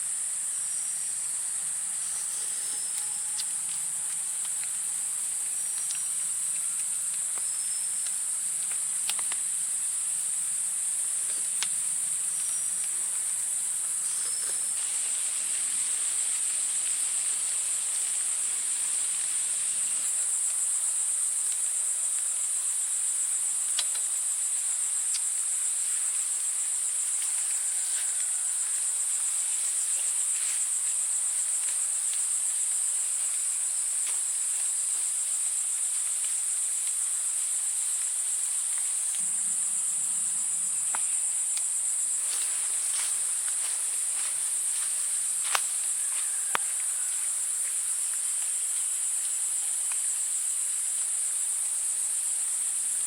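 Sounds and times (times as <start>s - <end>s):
insects droning: 0.0s - 53.0s.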